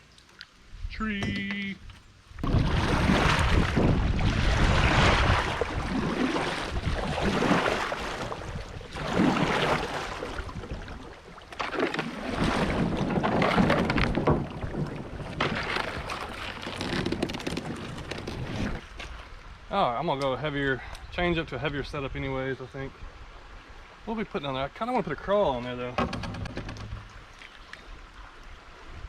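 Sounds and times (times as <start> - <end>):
water rushing and splashing: 0.0 - 20.7, 21.3 - 29.0
wind buffeting microphone: 0.7 - 9.1.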